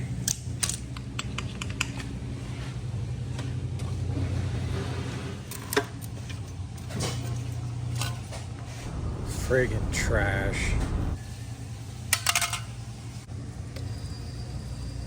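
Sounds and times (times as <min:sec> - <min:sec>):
small parts and tools clicking: 0:00.2 - 0:02.0
low machine hum: 0:08.7 - 0:11.9.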